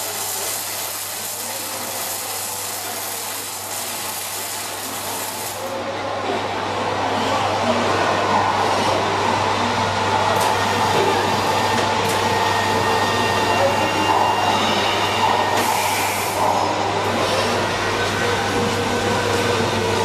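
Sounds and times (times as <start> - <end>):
welding machinery noise: 0.0 - 5.8, 10.3 - 20.0.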